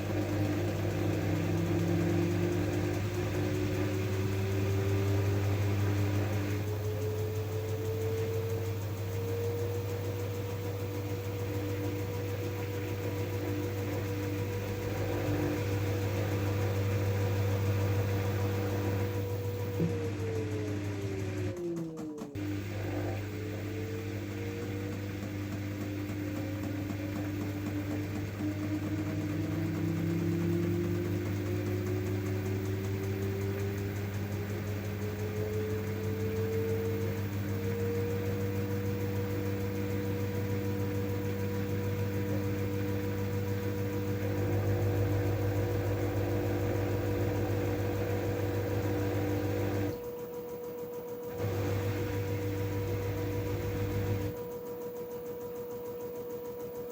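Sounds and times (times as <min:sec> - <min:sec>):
washing machine motor whine: 0:00.0 - 0:56.9
steady low hum: 0:51.3 - 0:54.4.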